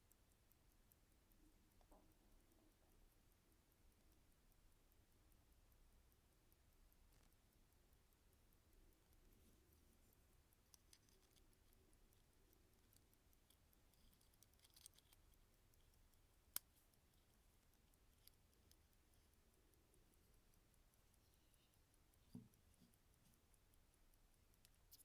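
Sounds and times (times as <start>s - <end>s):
watch ticking faintly: 0.0s - 25.0s
watch clicks: 6.1s - 25.0s.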